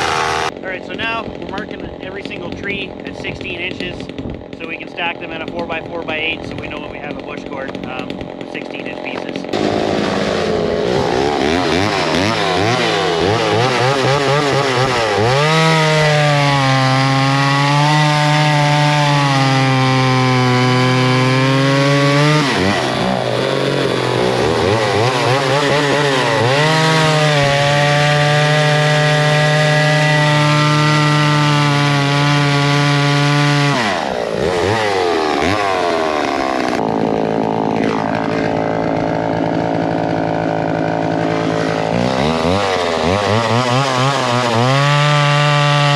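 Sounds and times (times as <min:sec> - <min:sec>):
chainsaw cutting wood: 0:00.0 - 0:45.9.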